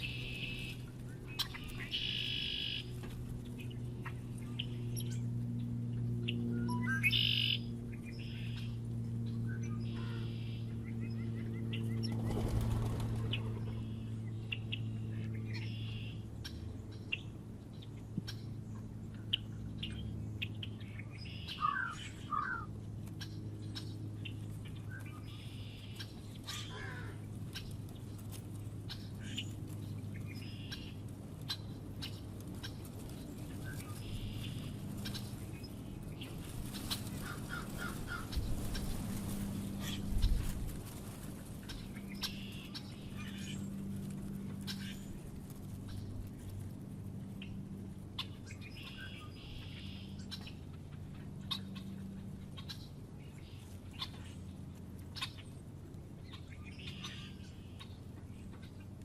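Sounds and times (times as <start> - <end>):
birds chirping: 0.0 - 59.0
steady low hum: 0.0 - 59.0
bird wings fluttering: 11.8 - 14.0, 31.1 - 47.1.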